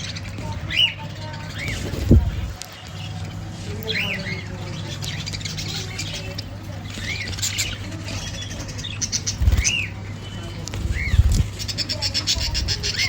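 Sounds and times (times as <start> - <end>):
caged birds chirping: 0.0 - 13.0
low muffled thumps: 1.9 - 2.6.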